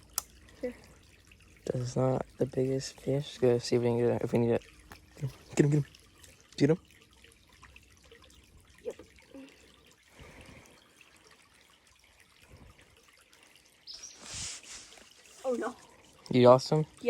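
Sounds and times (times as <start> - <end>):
faint trickling creek: 0.0 - 17.0
burst of hissing noise: 14.2 - 15.0.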